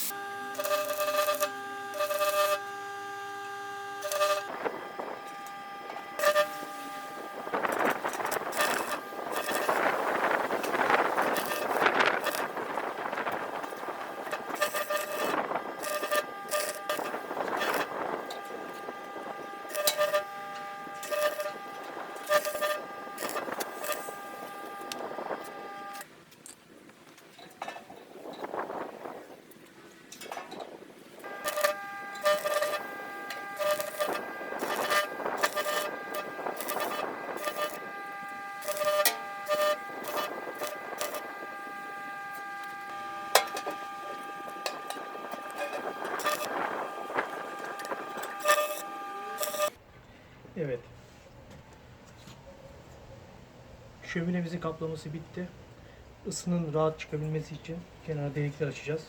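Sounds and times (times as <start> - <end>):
tool cutting sheet metal: 0.0 - 26.0, 31.2 - 49.8
power tool whining: 0.0 - 26.1, 30.8 - 49.8.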